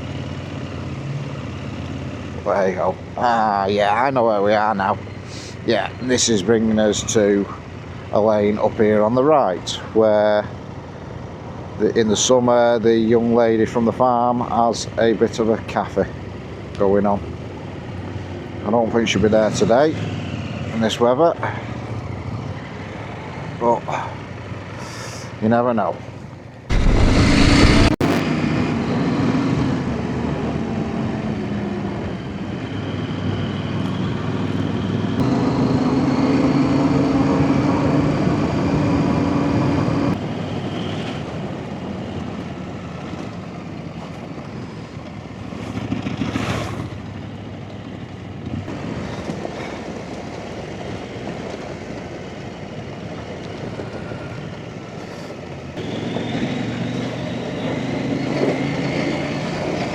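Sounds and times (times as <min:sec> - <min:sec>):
motorcycle engine revving: 0:26.7 - 0:28.2.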